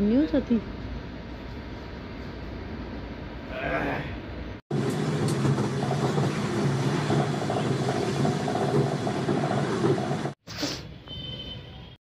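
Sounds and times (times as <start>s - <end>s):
train rumble inside carriage: 4.7s - 10.4s.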